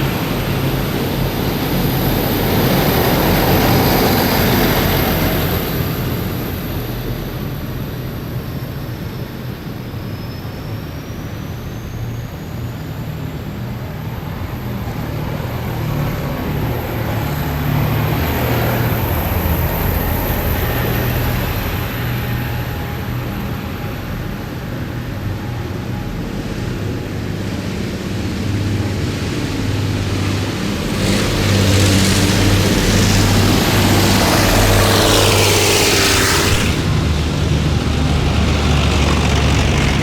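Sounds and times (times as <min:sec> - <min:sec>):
heavy diesel vehicles driving past: 0:28.3 - 0:40.0.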